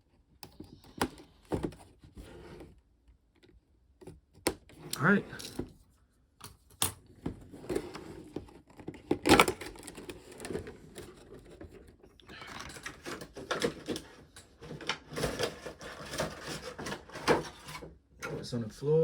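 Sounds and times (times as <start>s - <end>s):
clicks and scrapes of packaging: 6.5s - 18.0s.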